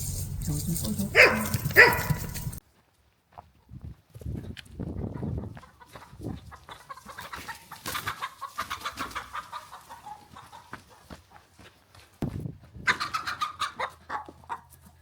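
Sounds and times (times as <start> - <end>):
chickens clucking: 4.9 - 11.5, 12.8 - 15.0.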